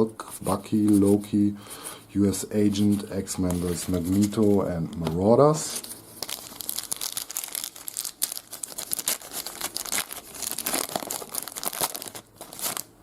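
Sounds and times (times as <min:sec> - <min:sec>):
wrapper tearing and crinkling: 0:06.2 - 0:13.0.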